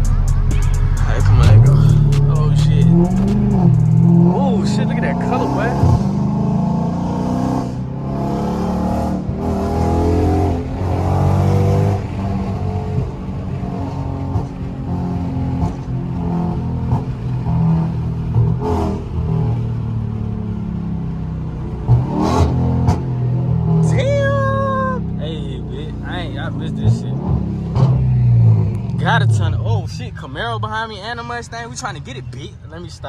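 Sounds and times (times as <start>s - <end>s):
loud car engine revving: 0.0s - 32.2s
exhaust cracks: 0.0s - 33.0s.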